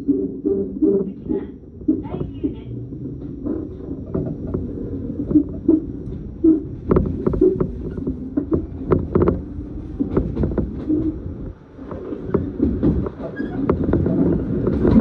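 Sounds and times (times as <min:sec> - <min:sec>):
train rumble inside passenger car: 0:00.0 - 0:15.0
wheels clicking and knocking: 0:00.0 - 0:15.0.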